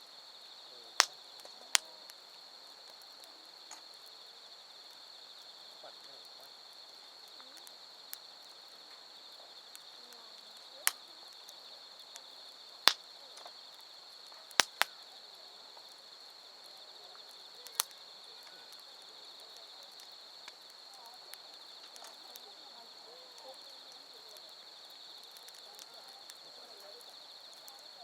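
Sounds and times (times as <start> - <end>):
insects trilling: 0.0 - 28.0
campfire wood popping: 0.5 - 28.0.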